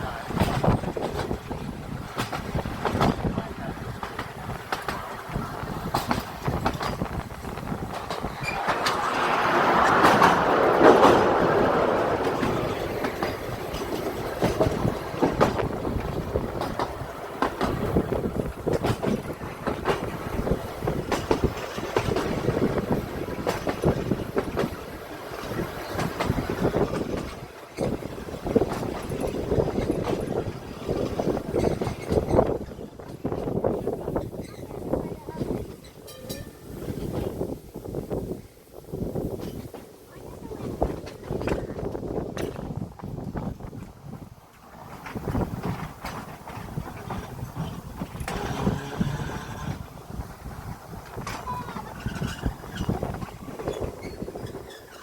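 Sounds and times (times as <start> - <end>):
wheels clicking over rails: 0.0 - 38.0, 39.1 - 55.0
electric tram running on track: 0.0 - 55.0
rushing swell: 7.2 - 15.3.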